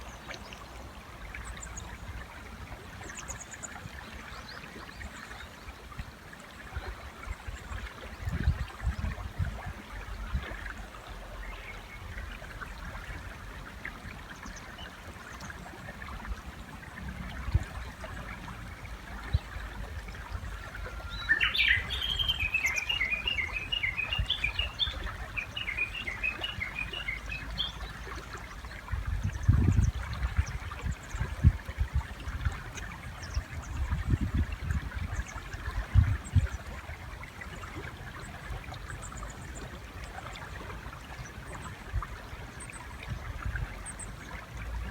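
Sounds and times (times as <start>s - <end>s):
river running: 0.0s - 44.9s
bird calling: 20.8s - 27.8s.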